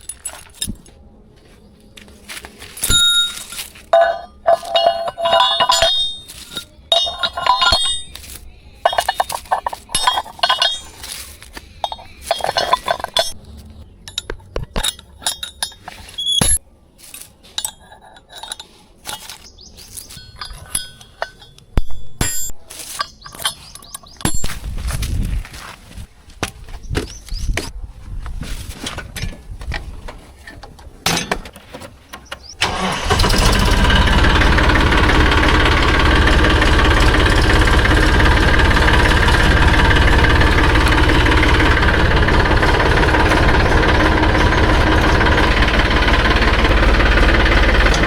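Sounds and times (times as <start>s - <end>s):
metallic clinking and rattling: 0.0s - 0.9s, 2.8s - 16.6s, 17.6s - 24.6s, 32.6s - 48.0s.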